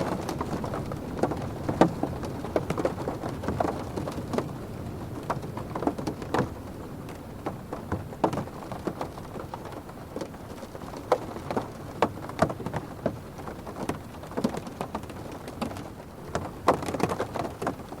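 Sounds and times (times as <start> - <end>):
rain tapping on car roof: 0.0 - 18.0.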